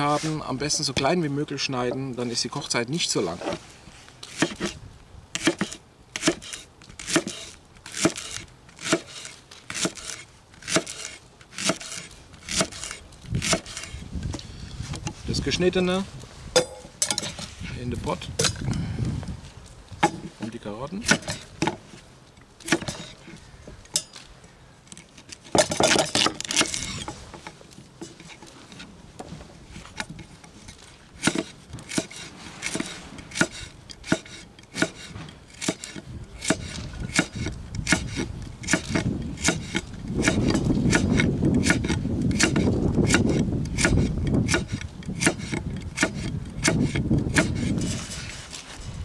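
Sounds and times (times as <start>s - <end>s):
knife chopping on wooden board: 31.2s - 47.6s
knife scrape: 47.4s - 48.9s.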